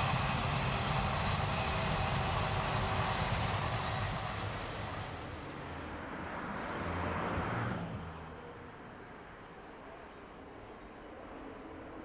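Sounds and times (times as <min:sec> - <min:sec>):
train running rushing rumble: 0:00.0 - 0:06.1.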